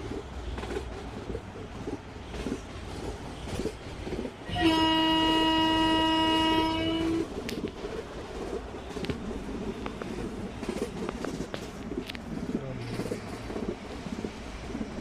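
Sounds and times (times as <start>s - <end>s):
train horn blast: 4.4s - 7.3s.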